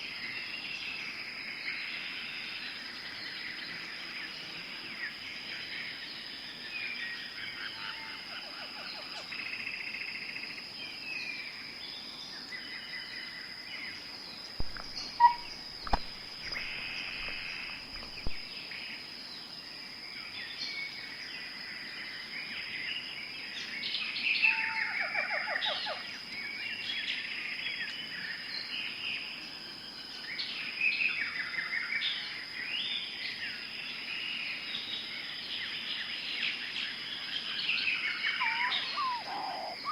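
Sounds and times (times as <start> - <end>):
birds chirping and trilling: 10.4 - 19.6, 20.2 - 29.1, 34.2 - 39.9.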